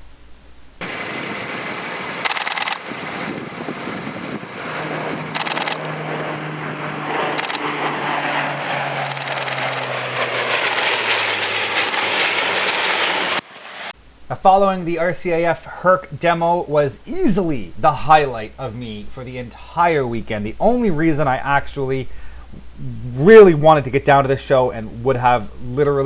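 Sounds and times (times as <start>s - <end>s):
turboprop aircraft droning: 0.8s - 14.0s
short loud noise bursts: 5.3s - 5.9s.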